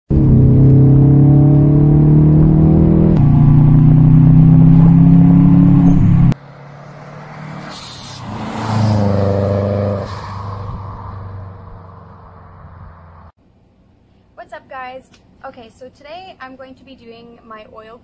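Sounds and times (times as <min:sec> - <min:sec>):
car engine accelerating: 0:00.1 - 0:13.3
car passing by: 0:04.2 - 0:13.3.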